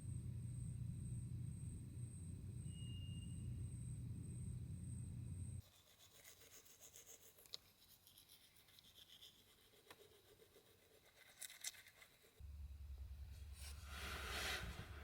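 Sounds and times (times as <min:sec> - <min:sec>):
faint scratchy rubbing: 0:13.3 - 0:15.0.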